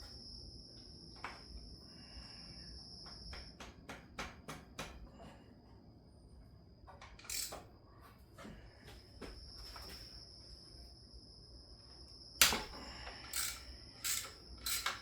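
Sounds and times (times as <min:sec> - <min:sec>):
metal tools clinking and knocking: 0:07.1 - 0:07.7, 0:12.4 - 0:15.0.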